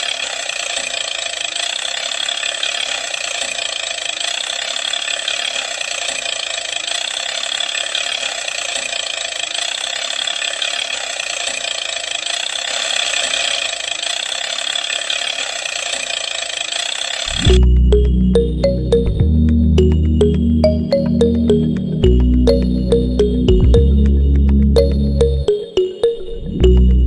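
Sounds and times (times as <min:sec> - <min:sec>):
toy electric motor whirring: 0:00.0 - 0:17.6.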